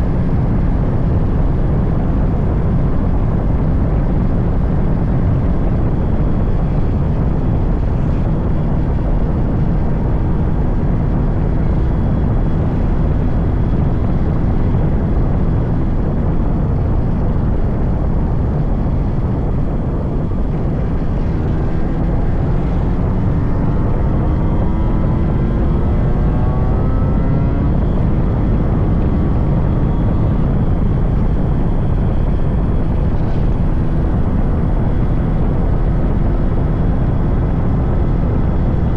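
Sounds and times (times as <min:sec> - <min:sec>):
motorcycle engine running: 0:00.0 - 0:38.9
wind rushing on microphone: 0:00.0 - 0:38.9.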